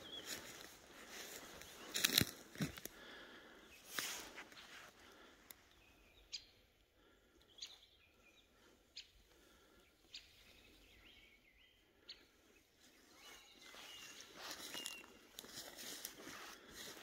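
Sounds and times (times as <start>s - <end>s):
faint bird chirps: 0.0s - 2.0s, 5.6s - 15.7s.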